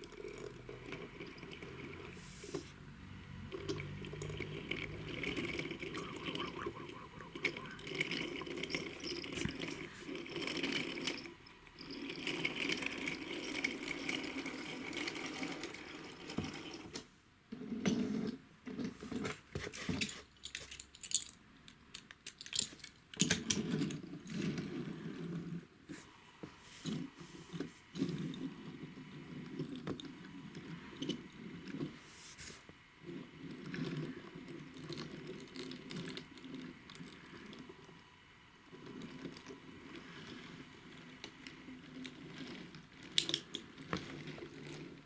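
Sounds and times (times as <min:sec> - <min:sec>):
small mechanism whirring and clicking: 0:00.0 - 0:17.1, 0:26.8 - 0:32.0, 0:32.6 - 0:45.0.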